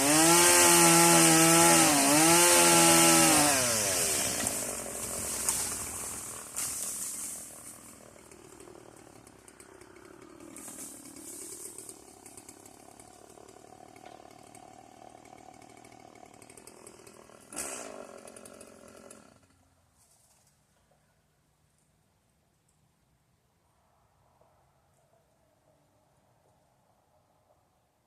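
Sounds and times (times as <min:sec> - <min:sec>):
chainsaw engine running: 0:00.0 - 0:19.6.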